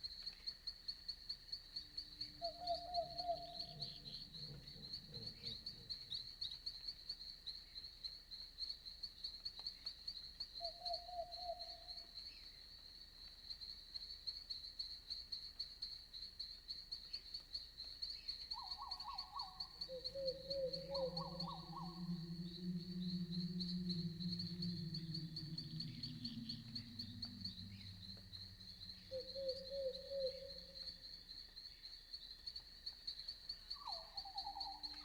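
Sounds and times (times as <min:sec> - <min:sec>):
crickets chirping: 0:00.0 - 0:35.0
owl hooting: 0:02.4 - 0:05.9, 0:18.6 - 0:31.0
faint low rumble: 0:19.9 - 0:31.1.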